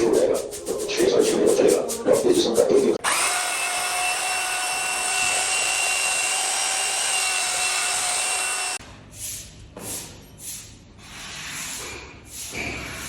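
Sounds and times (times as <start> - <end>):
power tool motor whining: 3.0 - 8.8.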